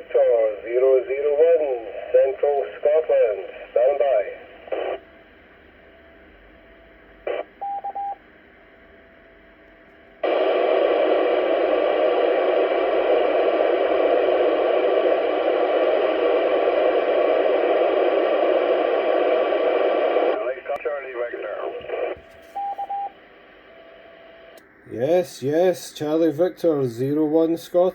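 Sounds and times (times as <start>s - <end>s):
radio static hiss: 0.0s - 5.7s, 7.2s - 7.5s, 10.2s - 27.9s
radio squelch burst: 10.2s - 22.9s.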